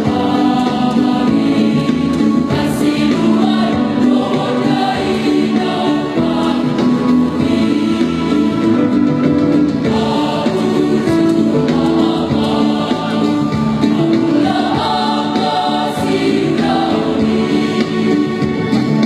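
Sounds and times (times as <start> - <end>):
choir singing: 0.0 - 19.0.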